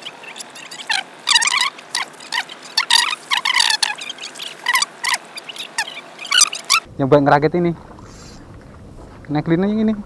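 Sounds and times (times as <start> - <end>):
small birds chirping: 0.0 - 6.9.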